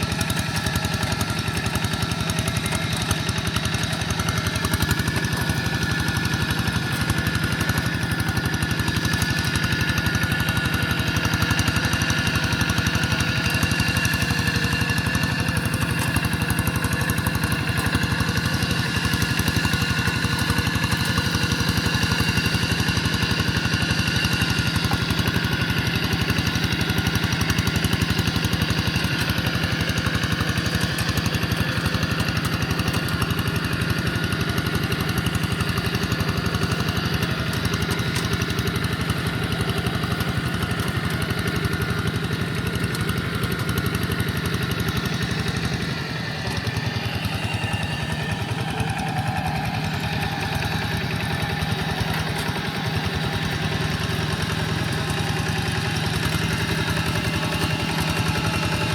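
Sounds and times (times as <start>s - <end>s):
walking tractor engine running: 0.0s - 58.9s.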